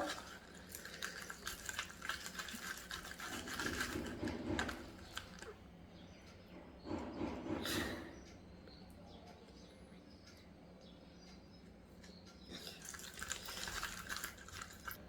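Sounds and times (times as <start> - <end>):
slime squelching: 0.0 - 5.6.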